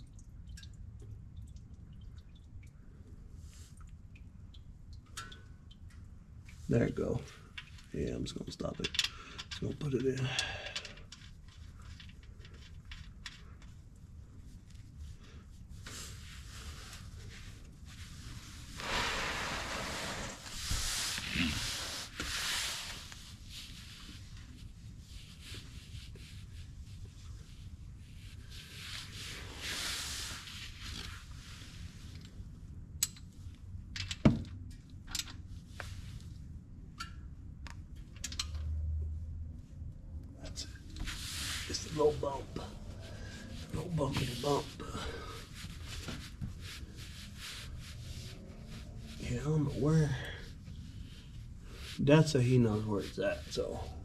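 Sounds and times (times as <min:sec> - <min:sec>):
rubbing and rustling handling noise: 0:06.4 - 0:32.6, 0:40.5 - 0:54.0.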